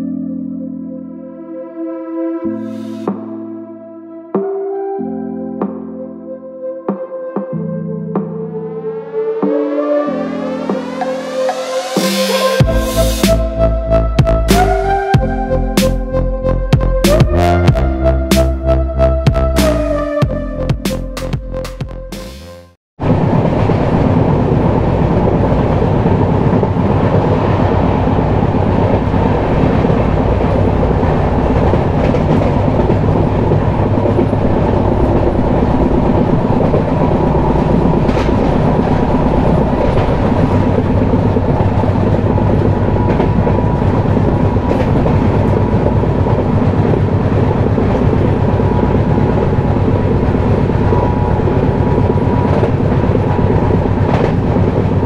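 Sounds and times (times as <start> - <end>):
train wheels rumbling on rails: 23.0 - 55.0
rail joint clicks: 25.8 - 55.0.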